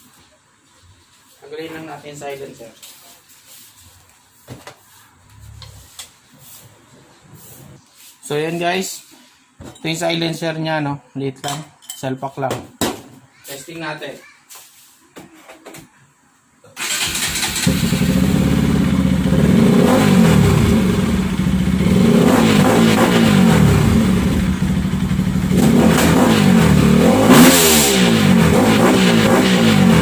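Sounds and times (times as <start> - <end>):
motorcycle engine starting and idling: 16.8 - 27.0.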